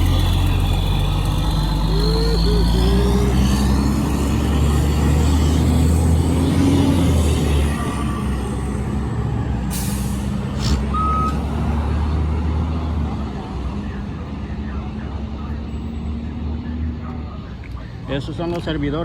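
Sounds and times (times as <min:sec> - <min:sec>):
heavy vehicle engine rumbling: 0:00.0 - 0:19.0
air brake hiss: 0:09.7 - 0:10.3.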